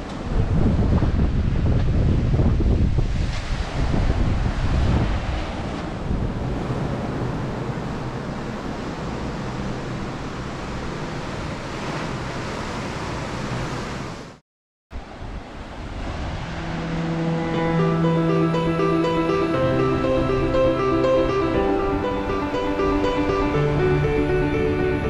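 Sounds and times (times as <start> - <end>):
wind buffeting microphone: 0.0 - 10.4
surf washing: 0.0 - 14.4, 15.0 - 25.0
acoustic guitar music: 16.5 - 25.0.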